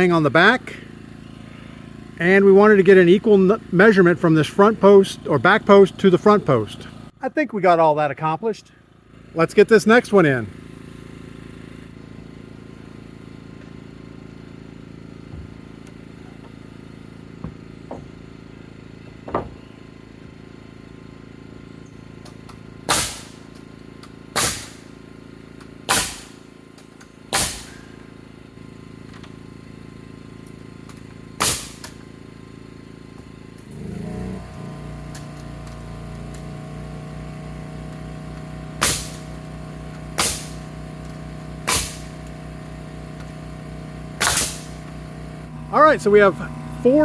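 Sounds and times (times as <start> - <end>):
hammer nailing into wood: 22.9 - 23.4, 24.3 - 24.8, 25.9 - 26.4, 27.3 - 27.8, 31.4 - 32.0, 38.8 - 39.4, 40.2 - 40.7, 41.6 - 42.2, 44.2 - 44.8
steady low hum: 30.4 - 47.0.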